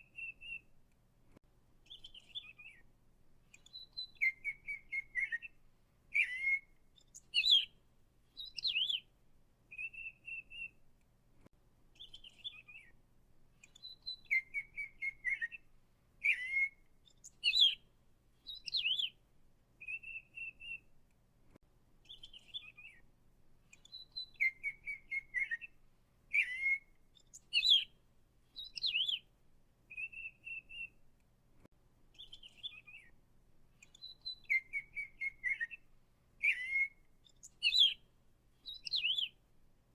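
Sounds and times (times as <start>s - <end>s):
songbird whistling phrases: 0.0s - 0.7s, 1.9s - 2.8s, 3.6s - 7.7s, 8.4s - 9.0s, 9.7s - 10.8s, 12.0s - 12.9s, 13.7s - 17.8s, 18.5s - 19.2s, 19.8s - 20.9s, 22.0s - 23.0s, 23.8s - 27.9s, 28.6s - 29.3s, 29.9s - 31.0s, 32.2s - 33.1s, 33.8s - 38.0s, 38.6s - 39.4s.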